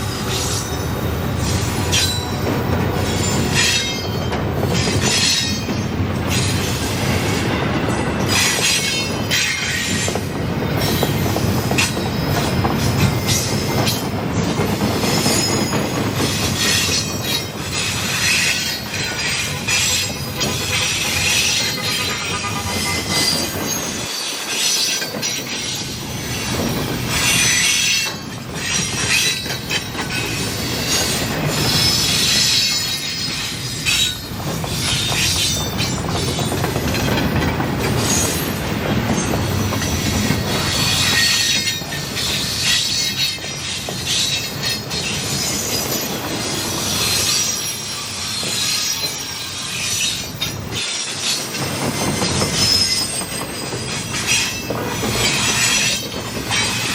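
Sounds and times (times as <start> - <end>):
rail rumbling: 0.0 - 56.9
train wheels squealing: 0.0 - 56.9.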